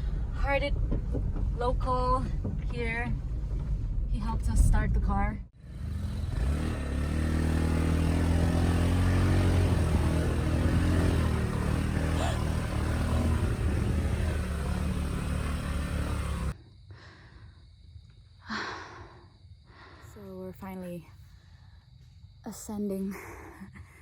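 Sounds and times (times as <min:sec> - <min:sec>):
car engine running: 0:00.0 - 0:16.6.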